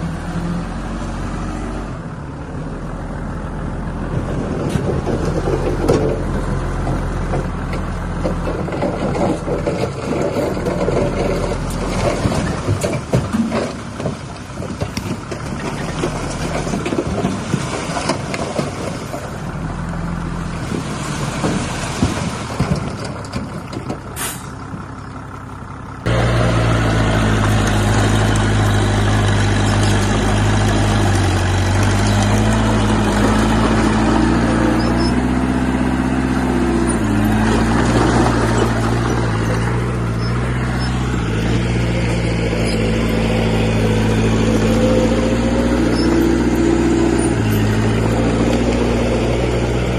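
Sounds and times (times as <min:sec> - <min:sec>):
diesel engine running: 0:00.0 - 0:49.9
machinery clattering and knocking: 0:04.0 - 0:19.6, 0:20.6 - 0:25.1, 0:26.1 - 0:49.9
short hiss: 0:24.2 - 0:24.5.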